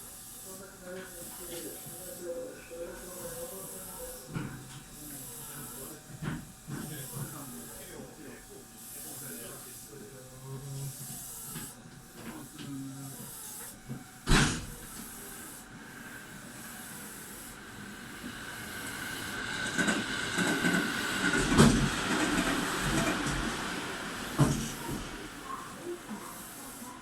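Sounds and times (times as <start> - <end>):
air hissing: 0.0 - 27.0
train rumble: 18.1 - 25.2.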